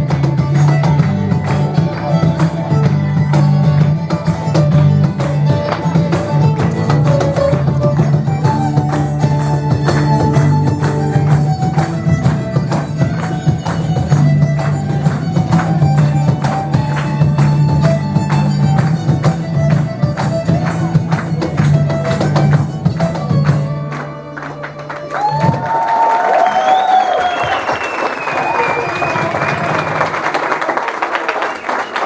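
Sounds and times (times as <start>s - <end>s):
folk melody line: 0.0s - 25.6s.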